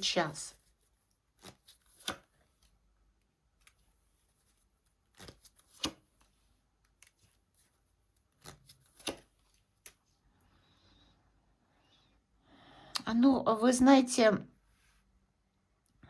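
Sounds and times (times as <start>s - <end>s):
cards snapping and rustling: 1.3s - 2.6s, 5.0s - 7.4s, 8.2s - 10.0s.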